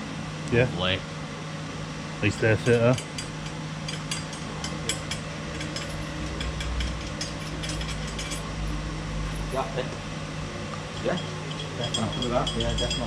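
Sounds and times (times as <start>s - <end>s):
steady low hum: 0.0s - 13.0s
metallic clicks of tools and bolts: 2.7s - 8.5s.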